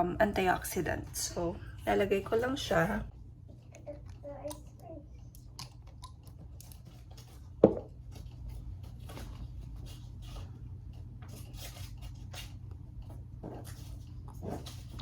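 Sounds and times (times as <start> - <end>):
faint clicks and taps: 3.4 - 9.4.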